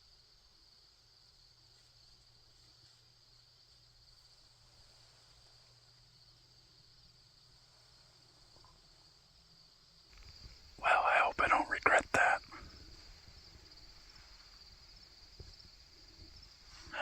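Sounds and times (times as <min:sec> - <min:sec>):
crickets trilling: 0:05.3 - 0:17.0.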